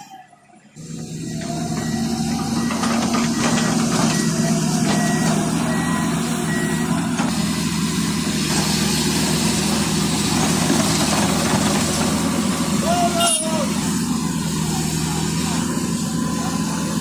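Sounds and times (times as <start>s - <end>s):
diesel engine running: 0.6s - 17.0s
reversing alarm beeping: 0.8s - 8.1s.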